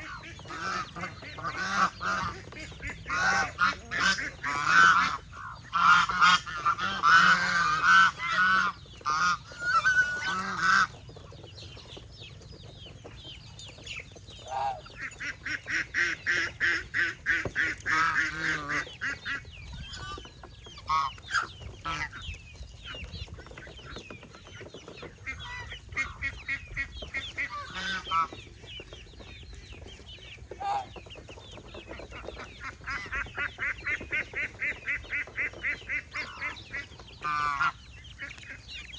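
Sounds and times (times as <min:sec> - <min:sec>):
geese honking: 0:00.0 - 0:11.0, 0:14.4 - 0:22.3, 0:25.1 - 0:28.4, 0:31.6 - 0:38.9.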